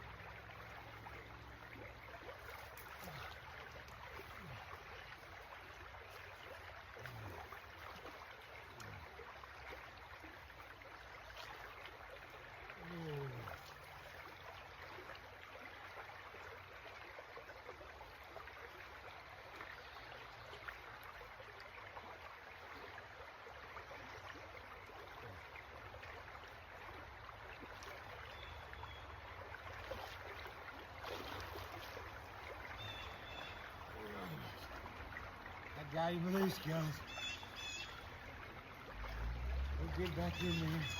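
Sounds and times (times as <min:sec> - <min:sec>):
creek water running: 0:00.0 - 0:40.9.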